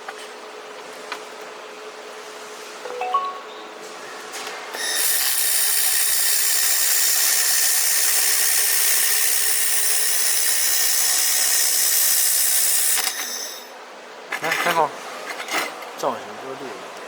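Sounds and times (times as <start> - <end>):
faint high tones: 2.9 - 3.9.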